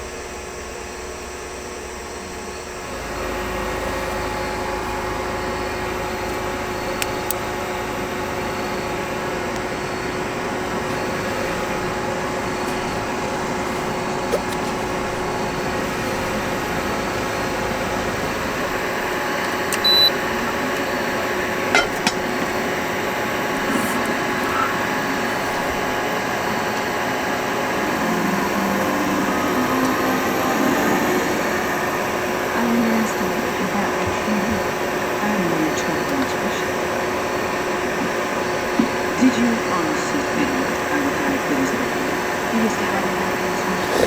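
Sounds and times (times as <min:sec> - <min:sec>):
cooktop fan humming: 0:00.0 - 0:44.0
short high beep: 0:19.8 - 0:20.2.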